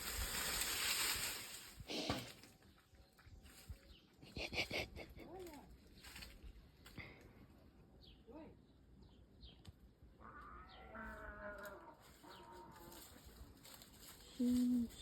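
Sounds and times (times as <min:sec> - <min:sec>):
birds chirping: 0:05.8 - 0:11.4.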